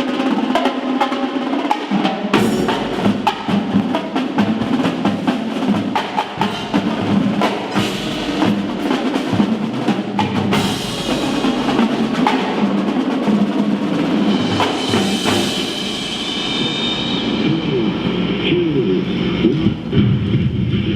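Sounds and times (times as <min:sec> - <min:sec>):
snare and drum strokes: 0:00.0 - 0:18.2
held pitched notes: 0:02.4 - 0:05.0, 0:06.2 - 0:19.8.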